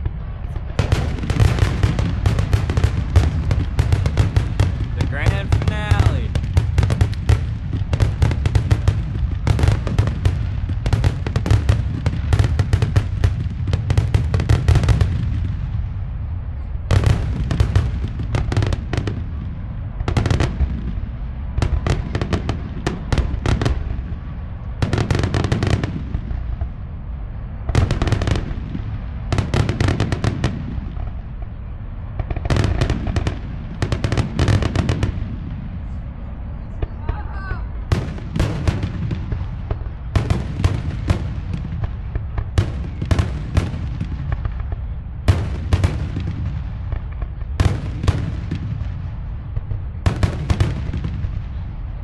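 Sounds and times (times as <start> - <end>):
low rumble: 0.0 - 24.9
fireworks crackling: 0.0 - 52.0.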